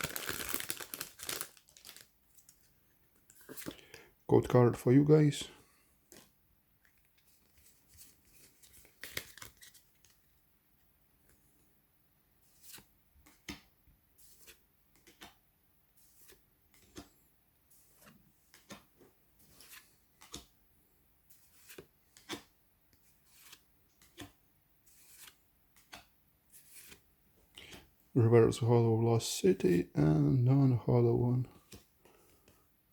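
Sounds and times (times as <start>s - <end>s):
trading cards sliding: 23.1s - 27.0s.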